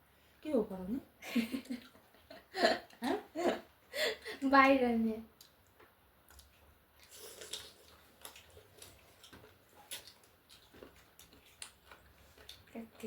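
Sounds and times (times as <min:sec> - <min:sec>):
person chewing food: 0:05.4 - 0:13.0.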